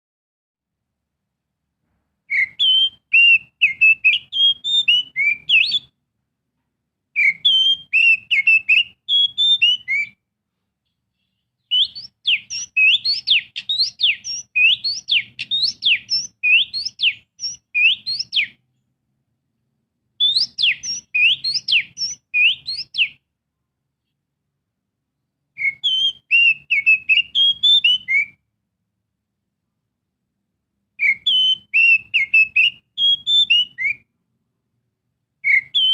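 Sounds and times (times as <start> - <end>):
bird whistled song: 2.3 - 6.0, 7.2 - 10.2, 11.2 - 18.6, 20.2 - 23.2, 25.6 - 28.4, 31.0 - 34.1, 35.4 - 35.9.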